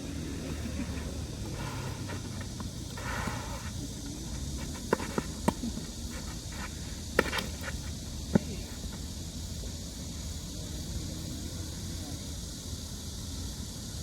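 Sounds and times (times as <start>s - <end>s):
outdoor background noise: 0.0s - 14.0s
tennis ball hits and bounces: 4.3s - 8.6s.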